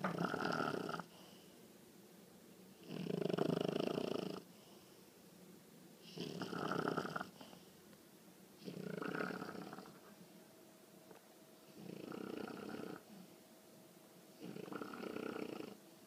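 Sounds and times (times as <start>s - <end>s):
puppy snoring: 0.0s - 1.2s, 2.8s - 4.6s, 6.0s - 7.7s, 8.6s - 10.1s, 11.6s - 13.3s, 14.3s - 15.8s.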